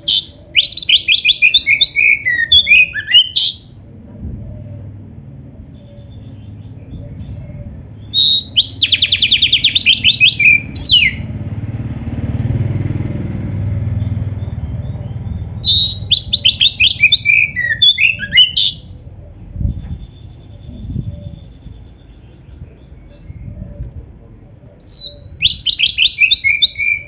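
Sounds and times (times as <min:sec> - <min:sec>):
bird singing rapid whistled notes: 0:00.0 - 0:03.8, 0:05.7 - 0:11.5, 0:13.7 - 0:19.0, 0:19.6 - 0:23.5, 0:24.8 - 0:27.0.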